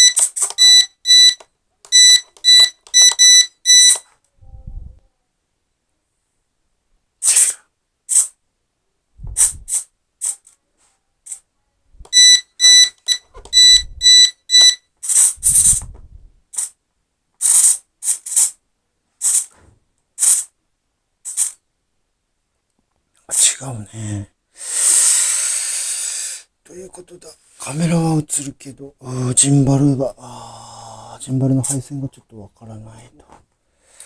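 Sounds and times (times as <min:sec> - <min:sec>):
short high electronic beeps: 0:00.0 - 0:04.0, 0:12.1 - 0:14.8
short hissy clicks: 0:00.2 - 0:00.6, 0:07.2 - 0:08.4, 0:09.4 - 0:10.6, 0:15.0 - 0:15.8, 0:16.5 - 0:16.8, 0:17.4 - 0:18.6, 0:19.2 - 0:19.6, 0:20.2 - 0:20.5, 0:21.3 - 0:21.6.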